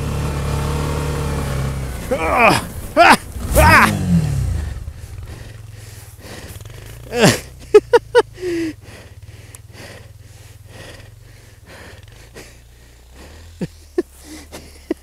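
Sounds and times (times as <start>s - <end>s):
person grunting: 2.1s - 5.6s, 6.2s - 8.8s
person breathing heavily: 4.6s - 15.0s.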